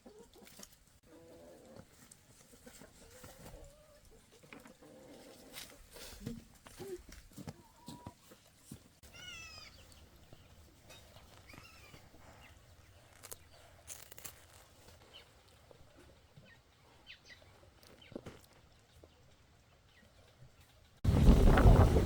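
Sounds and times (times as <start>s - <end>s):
faint farmyard background: 0.0s - 22.0s
faint animal call: 9.0s - 9.9s.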